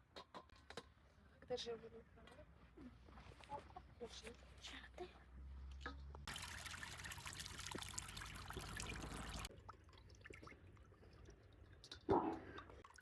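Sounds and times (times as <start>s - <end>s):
water pouring in a trickle: 6.3s - 13.0s.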